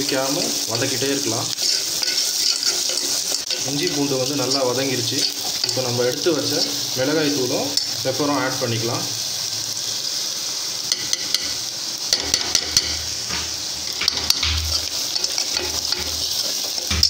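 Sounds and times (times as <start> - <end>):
onions sizzling in oil: 0.0 - 17.0
steel ladle scraping pot: 1.5 - 5.9, 13.8 - 17.0.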